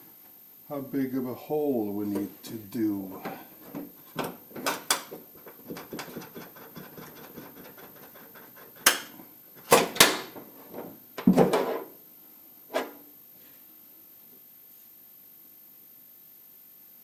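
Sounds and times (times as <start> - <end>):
tools knocking and clattering: 3.6 - 11.7.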